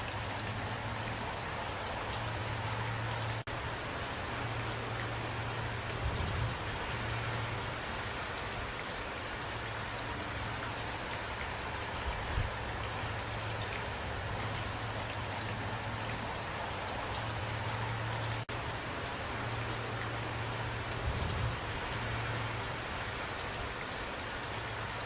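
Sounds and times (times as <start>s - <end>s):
steady rain falling: 0.0s - 25.0s
raindrop ticks: 19.4s - 25.0s.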